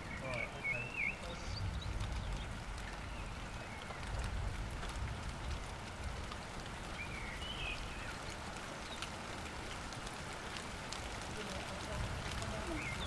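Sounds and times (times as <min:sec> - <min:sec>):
bird chirp: 0:00.0 - 0:04.2, 0:06.9 - 0:09.0
light rain falling: 0:00.0 - 0:13.0.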